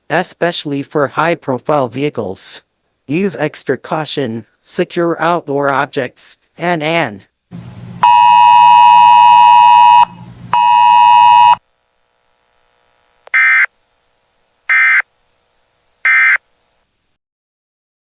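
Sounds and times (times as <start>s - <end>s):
weather radio buzzing tone: 8.0s - 13.7s, 14.7s - 15.1s, 16.0s - 16.5s.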